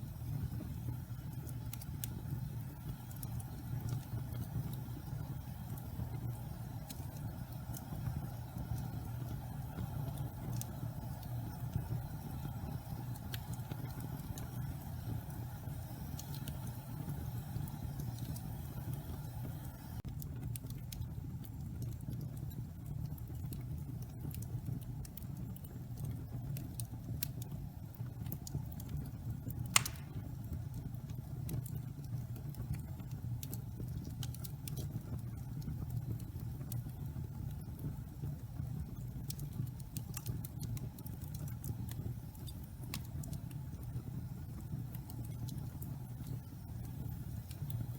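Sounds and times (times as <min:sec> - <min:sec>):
fire crackling and popping: 0:00.0 - 0:47.9
fire rumbling: 0:00.0 - 0:47.9.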